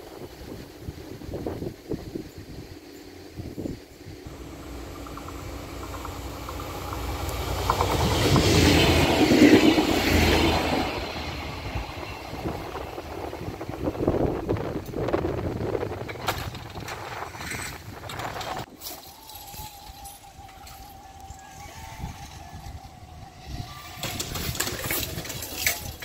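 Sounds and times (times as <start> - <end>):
train passing rumble: 0.0 - 26.0.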